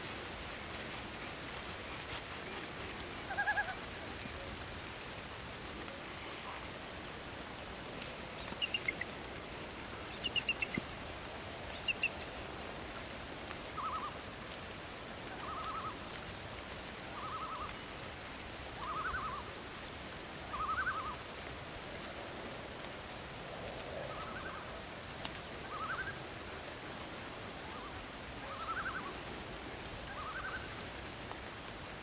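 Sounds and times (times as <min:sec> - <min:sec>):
steady background hiss: 0:00.0 - 0:32.0
birds chirping: 0:06.4 - 0:12.4
trilled bird call: 0:08.2 - 0:09.2, 0:09.9 - 0:10.9, 0:11.7 - 0:12.3, 0:13.7 - 0:14.2, 0:15.3 - 0:16.0, 0:17.2 - 0:17.7, 0:18.8 - 0:19.4, 0:20.5 - 0:21.2.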